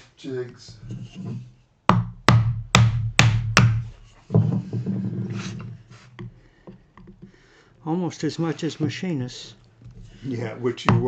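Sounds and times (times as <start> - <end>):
mallet striking chisel: 1.9 - 4.0.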